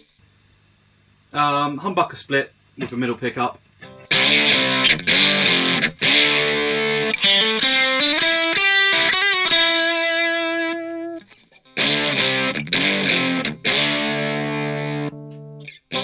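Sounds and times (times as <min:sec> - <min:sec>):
overdriven electric guitar: 0:03.8 - 0:16.0.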